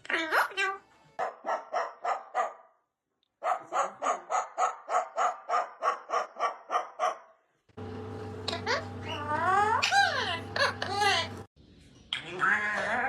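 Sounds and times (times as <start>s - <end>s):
dog barking: 1.2s - 2.8s, 3.4s - 7.4s.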